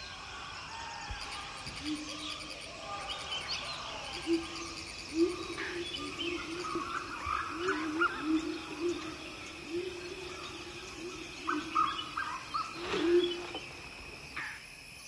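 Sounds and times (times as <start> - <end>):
birds chirping: 0.0 - 14.8
high insect drone: 0.0 - 15.0
bird hooting: 4.0 - 13.7.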